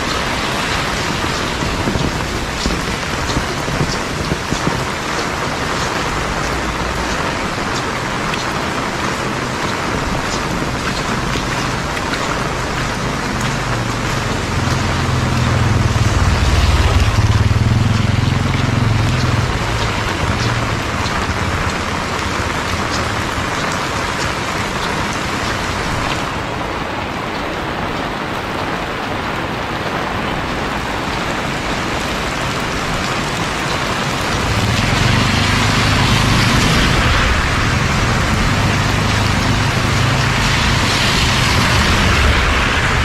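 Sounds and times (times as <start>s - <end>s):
heavy rain falling: 0.0s - 43.0s
low rumble: 10.8s - 23.4s.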